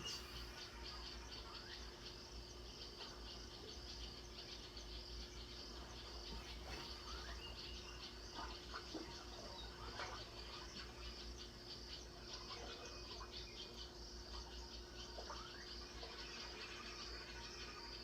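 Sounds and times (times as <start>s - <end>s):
faint low hum: 0.0s - 18.0s
insect chorus trilling: 0.0s - 18.0s.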